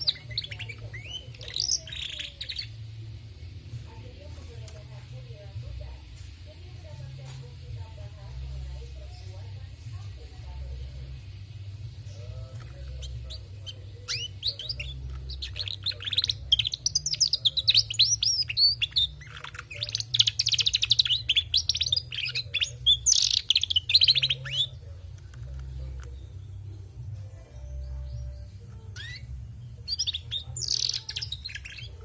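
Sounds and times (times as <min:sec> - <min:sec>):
canary twittering and trilling: 0:00.0 - 0:32.0.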